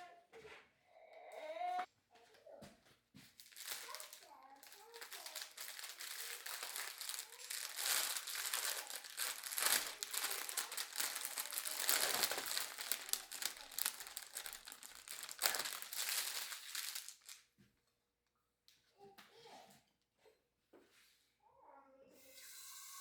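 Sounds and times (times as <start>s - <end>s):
crinkling and crackling: 3.2s - 17.5s.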